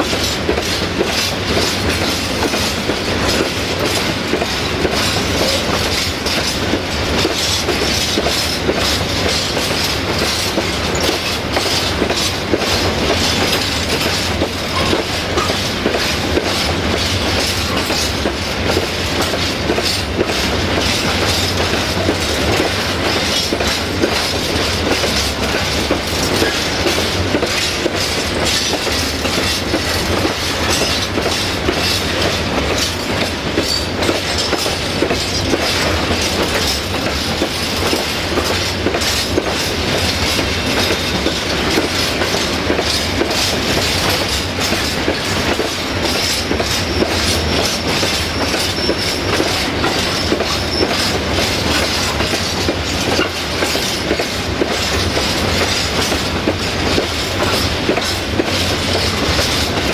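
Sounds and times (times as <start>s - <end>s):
clattering over rail joints: 0.0s - 59.9s
freight train wheels rumbling: 0.0s - 59.9s.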